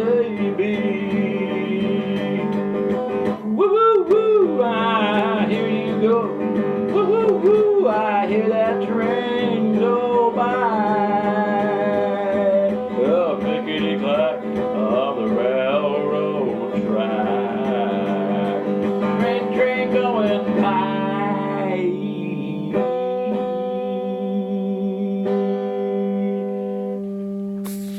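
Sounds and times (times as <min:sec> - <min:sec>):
man singing wordlessly: 0:00.0 - 0:26.9
acoustic guitar strumming: 0:00.0 - 0:27.9.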